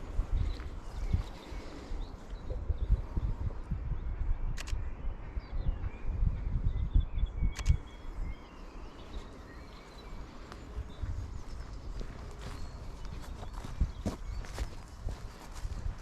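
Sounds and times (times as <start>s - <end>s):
footsteps walking outdoors: 0.0s - 2.4s, 8.1s - 16.0s
small birds chirping: 0.0s - 16.0s
sharp clicks: 4.5s - 4.8s, 7.5s - 7.8s.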